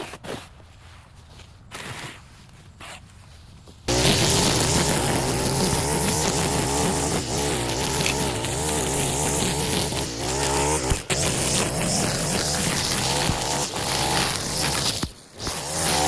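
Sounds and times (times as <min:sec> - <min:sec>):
small two-stroke engine running: 0:03.9 - 0:16.0.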